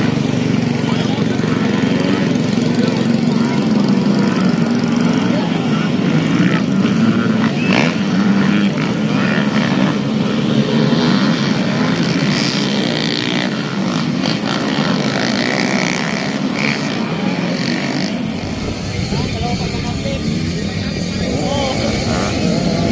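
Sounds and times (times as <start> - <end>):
dirt bike engines droning: 0.0 - 22.9.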